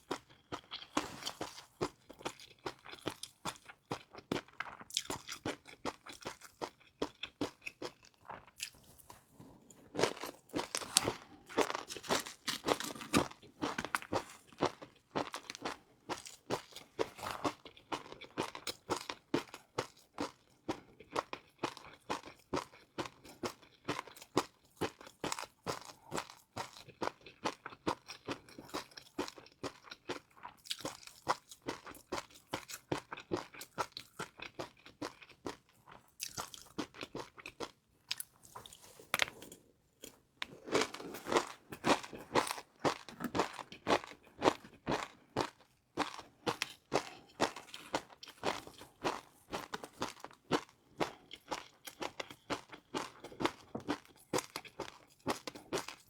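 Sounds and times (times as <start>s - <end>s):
crunching crispy noodles: 10.0s - 19.3s.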